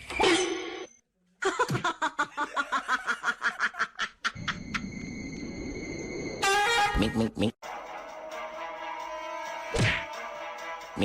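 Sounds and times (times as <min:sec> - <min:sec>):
person laughing: 0:01.4 - 0:04.8.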